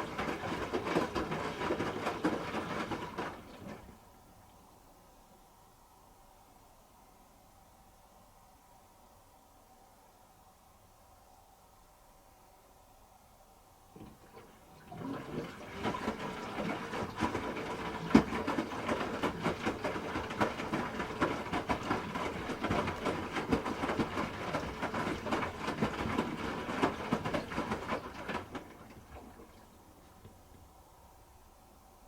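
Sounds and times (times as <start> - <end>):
wet laundry knocking and sloshing: 0.0 - 4.2, 14.0 - 30.8
washing machine drum turning: 14.0 - 29.7.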